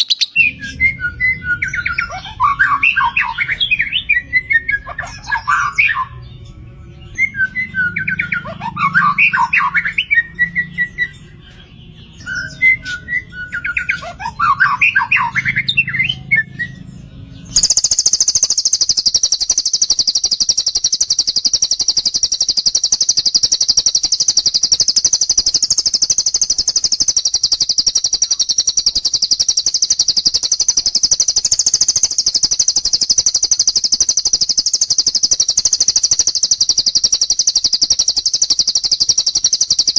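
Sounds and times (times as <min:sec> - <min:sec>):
cage bird warbling song: 0:00.0 - 0:39.9
high-pitched rapid trill: 0:17.5 - 0:39.9.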